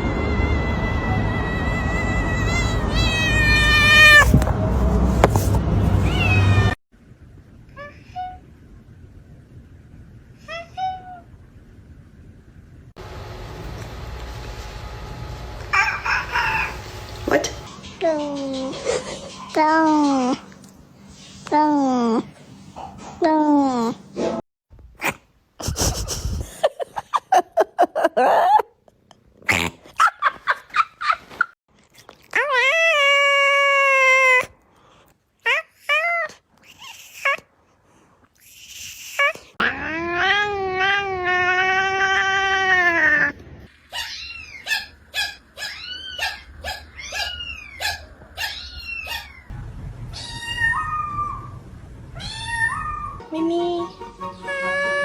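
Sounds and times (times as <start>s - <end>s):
cat meowing: 0.2s - 4.4s, 6.0s - 6.8s, 43.9s - 49.5s, 50.1s - 51.6s, 52.2s - 53.2s
low rumble: 46.5s - 53.2s.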